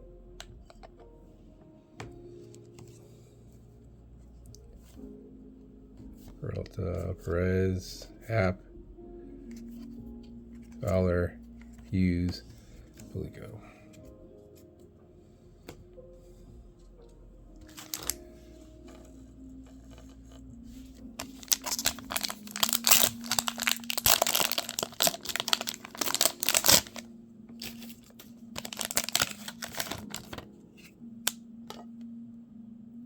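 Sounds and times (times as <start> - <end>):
foil wrapper crinkling and tearing: 17.6 - 18.3, 21.2 - 30.5.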